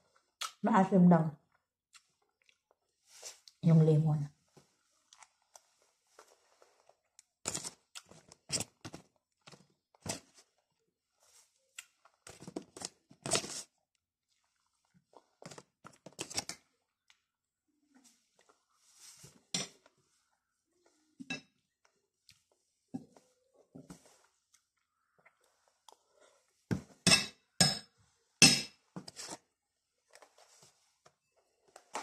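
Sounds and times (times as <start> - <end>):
chewing crunchy salad: 1.9 - 2.8.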